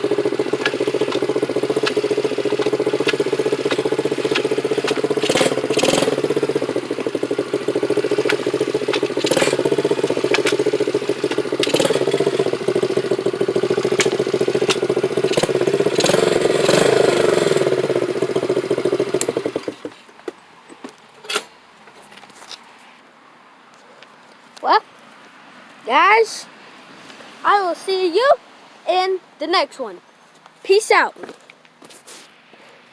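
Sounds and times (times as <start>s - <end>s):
dirt bike engine running: 0.0s - 19.9s.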